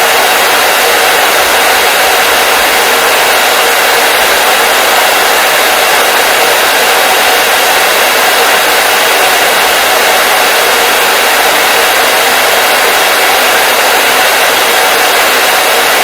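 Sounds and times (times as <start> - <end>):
hair dryer blowing: 0.0 - 16.0.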